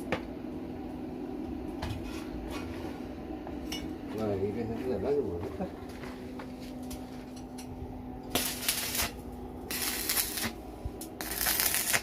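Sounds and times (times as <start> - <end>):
welding arc crackling: 8.2 - 12.0.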